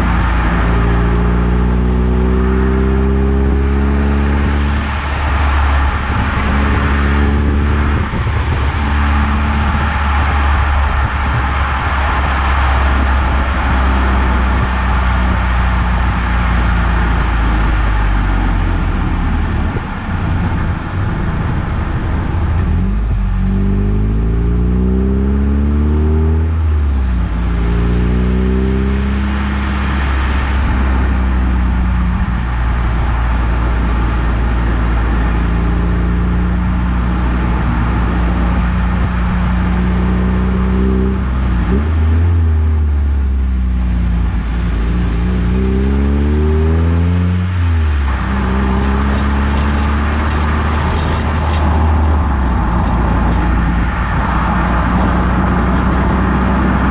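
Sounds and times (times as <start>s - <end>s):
car engine running: 0.0s - 23.3s, 43.7s - 56.9s
road noise: 0.0s - 56.9s.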